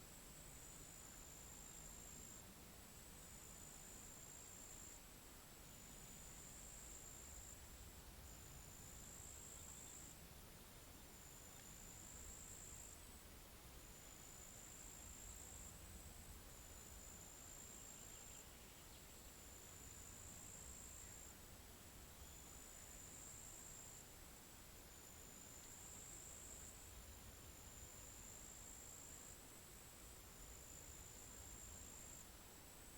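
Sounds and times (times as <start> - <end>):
high-pitched insect trill: 5.9 - 7.6, 8.3 - 10.2, 11.2 - 13.0, 14.0 - 15.8, 16.5 - 21.4, 22.1 - 24.1, 30.4 - 32.3.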